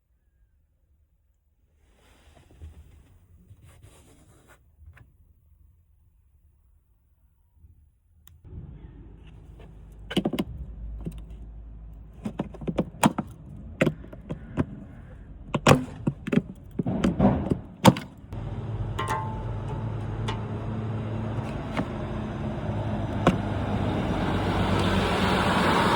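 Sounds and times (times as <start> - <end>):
low hum: 8.5 - 12.2, 13.4 - 25.9
steady running noise: 18.4 - 24.9
clicks and knocks of filter cover: 19.0 - 20.6.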